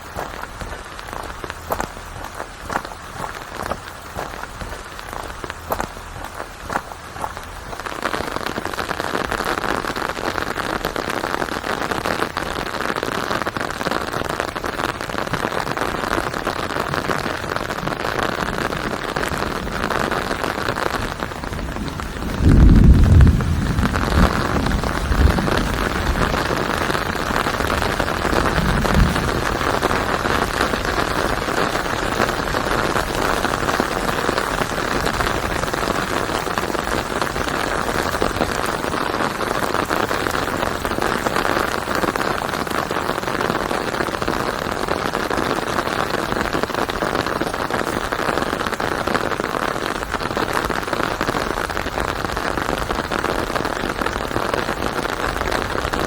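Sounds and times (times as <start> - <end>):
rain falling steadily: 0.0 - 56.0
low rumble: 21.2 - 30.9.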